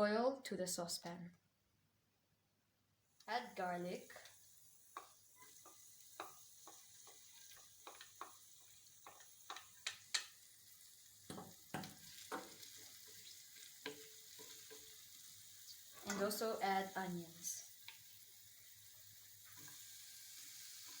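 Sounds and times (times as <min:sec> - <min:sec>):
garlic sizzling in oil: 0:03.1 - 0:21.0
utensil tapping and scraping pan: 0:04.9 - 0:10.4, 0:11.3 - 0:15.0.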